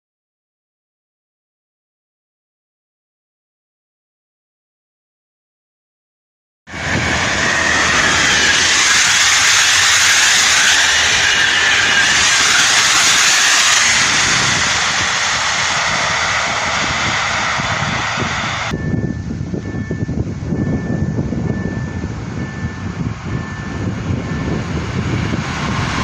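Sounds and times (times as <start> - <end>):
passenger train passing: 6.7 - 26.0.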